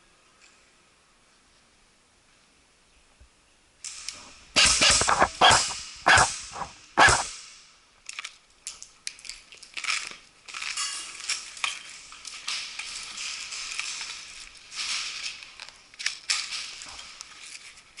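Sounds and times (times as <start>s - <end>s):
airsoft guns firing bursts: 4.6s - 7.3s
clatter and rustling: 8.2s - 18.0s.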